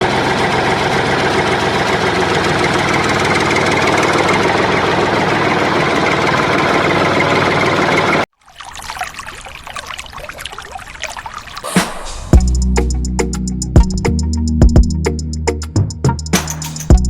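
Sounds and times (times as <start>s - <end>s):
machine running with fast rattle: 0.2s - 8.2s.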